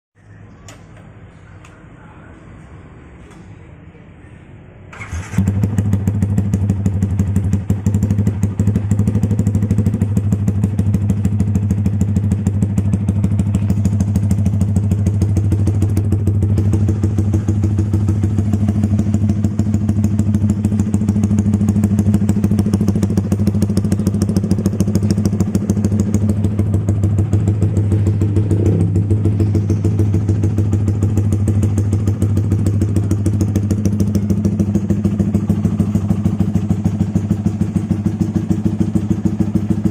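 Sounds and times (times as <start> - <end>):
motorcycle engine idling: 4.9 - 39.9.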